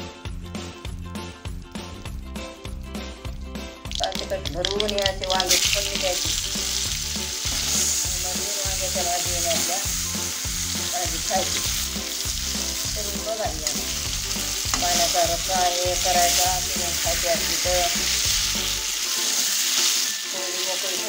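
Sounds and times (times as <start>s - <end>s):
dough sizzling in hot oil: 5.4s - 21.0s.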